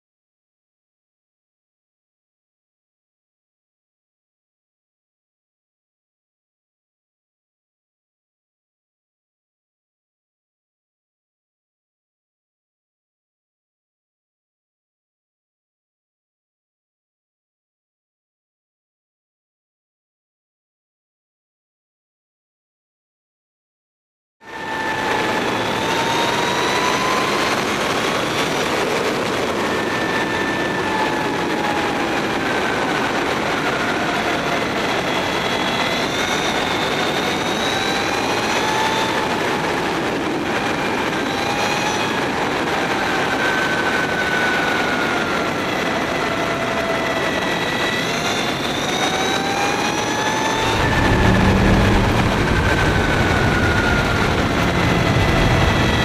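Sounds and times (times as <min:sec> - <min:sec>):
wind rush: 0:24.5 - 0:56.0
electric motor whine: 0:24.6 - 0:32.7, 0:46.3 - 0:56.0
low rumble: 0:50.5 - 0:56.0.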